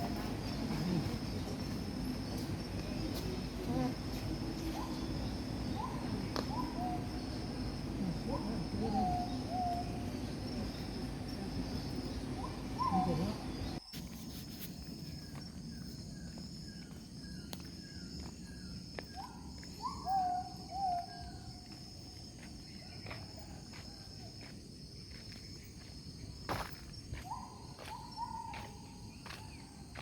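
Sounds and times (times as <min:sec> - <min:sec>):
high-pitched insect drone: 0:00.0 - 0:20.7.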